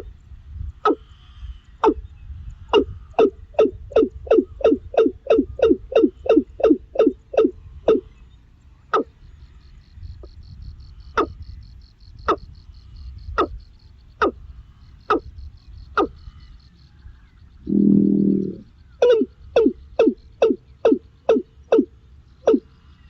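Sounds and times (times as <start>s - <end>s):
buzzy low bird call: 0.8s - 8.2s, 17.5s - 22.7s
bird sharp downward calls: 17.6s - 21.9s
faint high rapid trill: 17.7s - 18.6s.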